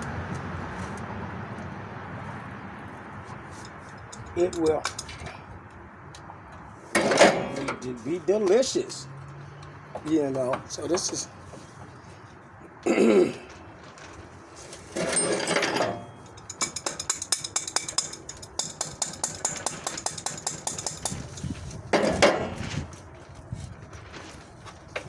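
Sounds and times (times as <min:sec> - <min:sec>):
ratchet wrench clicking: 0:16.4 - 0:21.4.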